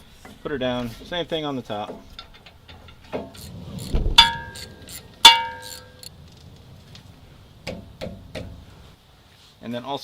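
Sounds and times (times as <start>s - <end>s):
metal tools being handled: 1.8s - 6.2s
ringing metallic clanks: 1.8s - 6.4s.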